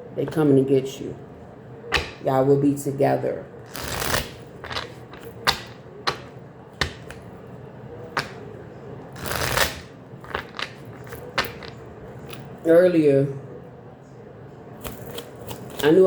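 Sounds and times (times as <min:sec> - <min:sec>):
cards snapping and tapping: 0:01.9 - 0:02.2, 0:03.7 - 0:07.2, 0:08.2 - 0:08.4, 0:09.2 - 0:11.8
cards sliding together: 0:09.2 - 0:10.7.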